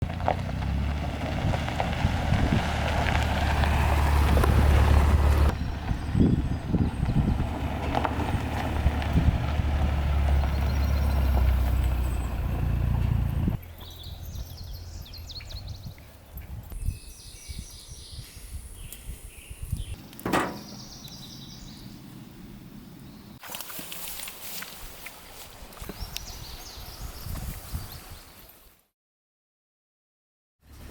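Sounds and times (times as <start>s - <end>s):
birds chirping: 4.8s - 8.8s, 10.0s - 23.4s.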